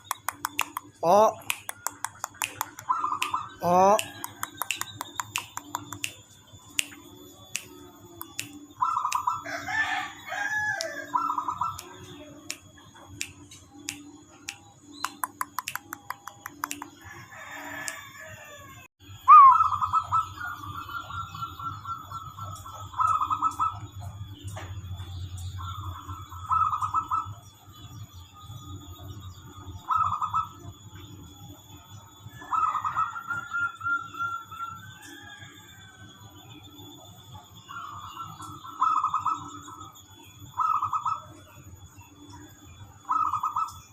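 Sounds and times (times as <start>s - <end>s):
sharp clicks: 0.0s - 6.2s, 6.8s - 9.2s, 11.7s - 17.0s
rapidly pulsed bird call: 0.0s - 17.3s, 19.0s - 43.9s
birds calling: 0.0s - 43.9s.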